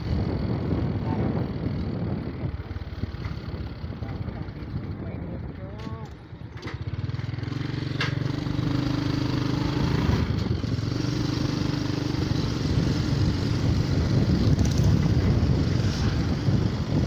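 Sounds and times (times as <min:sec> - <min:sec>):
motorcycle engine running: 0:00.0 - 0:17.0
road and wind noise: 0:00.0 - 0:17.0.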